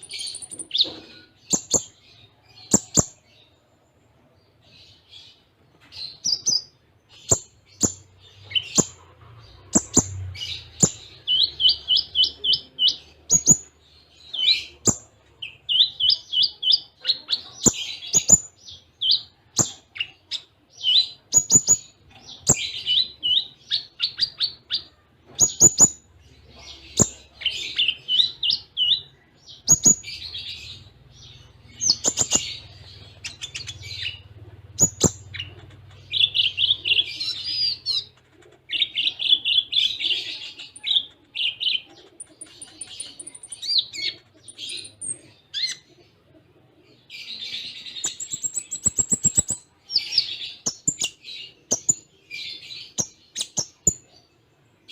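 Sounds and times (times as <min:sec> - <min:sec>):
bird chirps and trills: 0:00.0 - 0:03.6, 0:04.8 - 0:46.2, 0:46.8 - 0:54.2
sharp clicking bird notes: 0:02.7 - 0:03.2.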